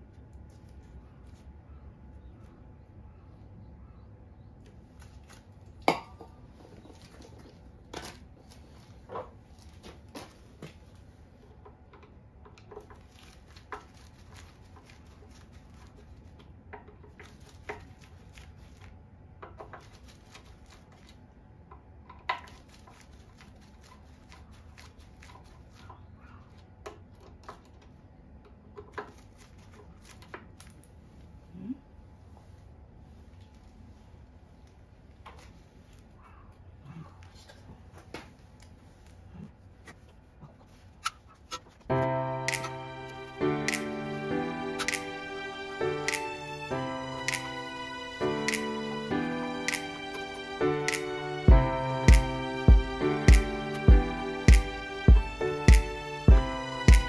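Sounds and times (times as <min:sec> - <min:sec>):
low background hum: 0:00.0 - 0:57.0.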